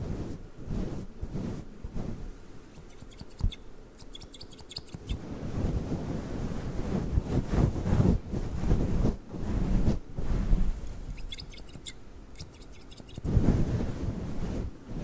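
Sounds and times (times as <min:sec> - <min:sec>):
scissor snips: 0:02.8 - 0:05.2, 0:11.1 - 0:13.3.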